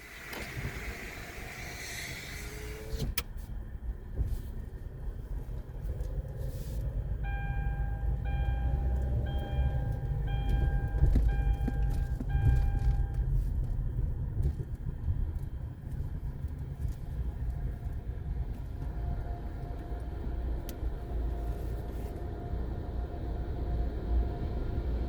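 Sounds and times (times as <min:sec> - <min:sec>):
electronic beeps: 0:07.3 - 0:13.2.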